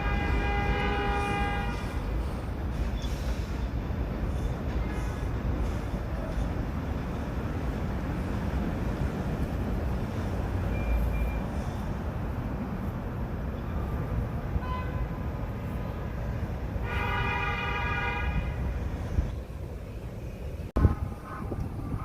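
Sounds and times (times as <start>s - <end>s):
train horn: 0.0s - 2.1s, 14.6s - 15.3s, 16.8s - 18.7s, 20.8s - 22.0s
subway train rumbling: 0.0s - 22.0s.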